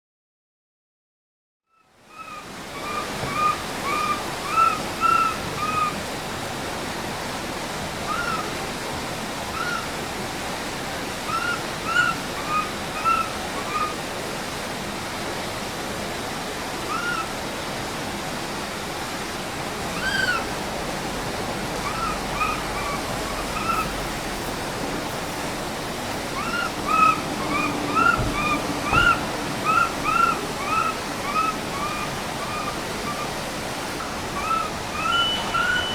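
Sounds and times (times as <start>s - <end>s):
rushing noise: 19.6s - 35.9s
infant monkey cooing: 21.8s - 35.9s.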